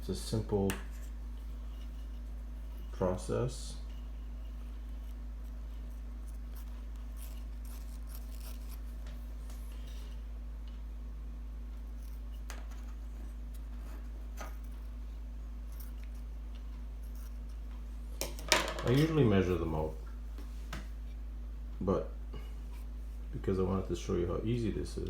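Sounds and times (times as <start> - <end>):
steady low hum: 0.0 - 25.0
scissors snipping: 6.2 - 9.7.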